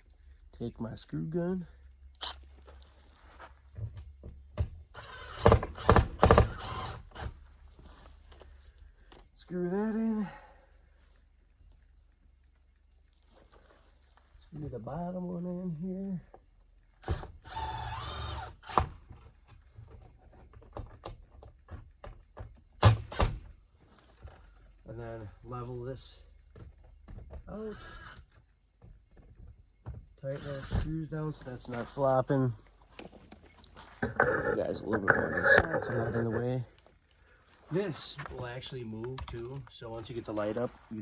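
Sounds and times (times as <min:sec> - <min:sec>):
cordless screw gun running: 0:05.0 - 0:07.3, 0:17.1 - 0:18.9
cordless screw gun driving screw: 0:05.0 - 0:07.4, 0:30.3 - 0:30.9.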